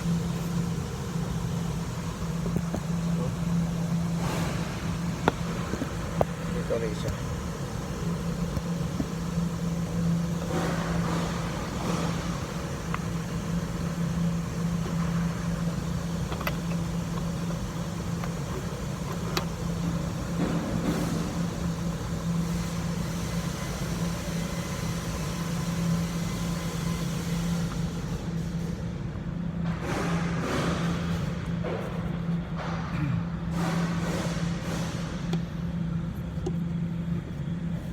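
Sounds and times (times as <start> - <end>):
engine idling: 0.0 - 28.8.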